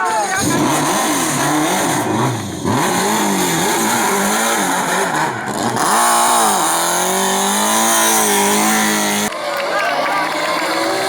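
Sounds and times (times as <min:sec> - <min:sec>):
race car engine revving: 0:00.0 - 0:09.4.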